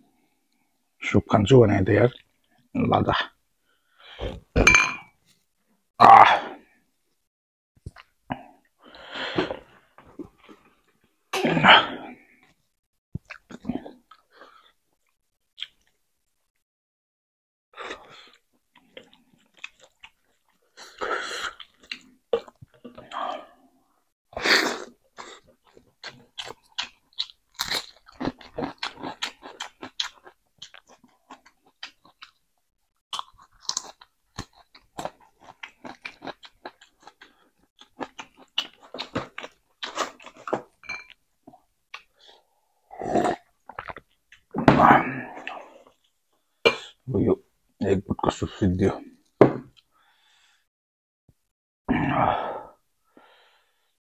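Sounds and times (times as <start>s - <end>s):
chewing and crunching fish: 25.2s - 32.4s, 33.1s - 40.7s.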